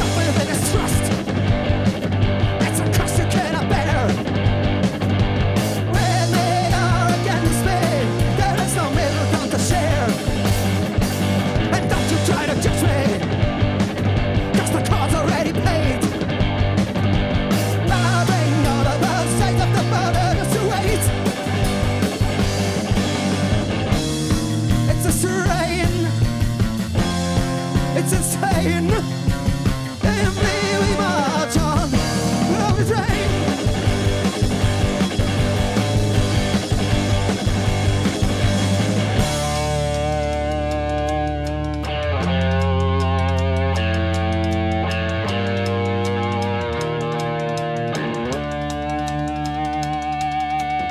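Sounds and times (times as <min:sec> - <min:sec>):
person singing: 0:00.0 - 0:01.2, 0:02.6 - 0:04.2, 0:05.9 - 0:10.3, 0:11.6 - 0:13.4, 0:14.5 - 0:16.1, 0:17.9 - 0:21.2, 0:24.9 - 0:26.2, 0:28.0 - 0:29.1, 0:30.0 - 0:33.7
live rock band playing: 0:00.0 - 0:50.9.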